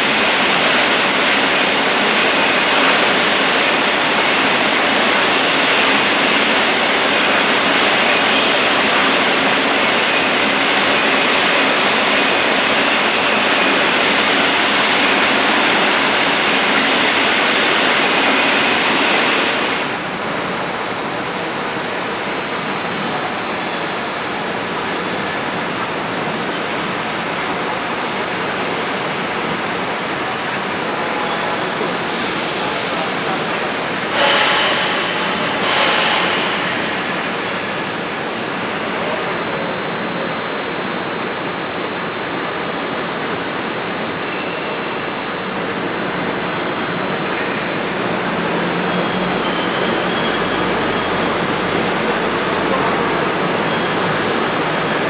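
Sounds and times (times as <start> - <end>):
industrial machine running with whine: 0.0 - 55.0
short loud hissing surges: 31.0 - 38.8.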